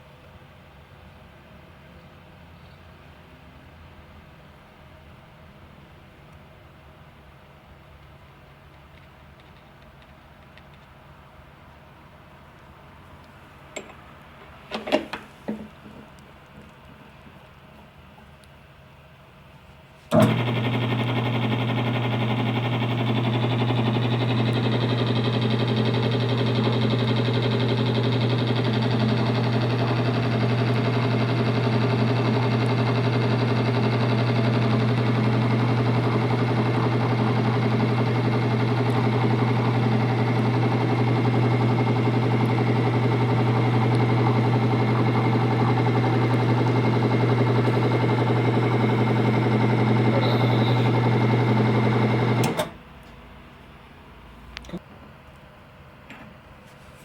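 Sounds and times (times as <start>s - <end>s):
electric motor humming: 20.1s - 52.6s.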